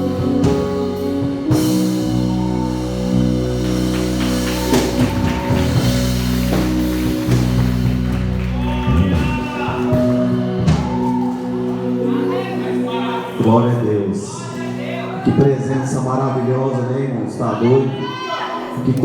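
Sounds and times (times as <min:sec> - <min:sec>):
person singing: 0:00.0 - 0:07.4
worship band music: 0:00.0 - 0:19.0.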